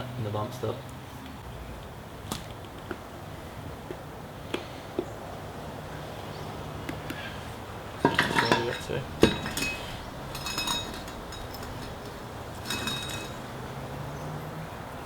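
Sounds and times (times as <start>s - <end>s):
metal parts clinking: 8.0s - 13.8s
short metallic rings: 8.0s - 14.5s.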